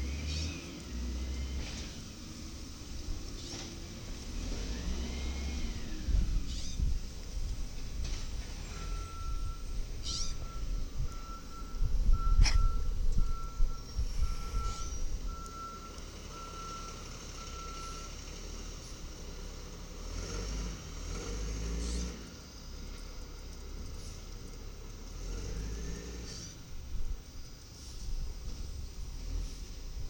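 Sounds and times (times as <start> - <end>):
diesel engine running: 0.0 - 30.0
reverse alarm beeping: 8.7 - 18.1.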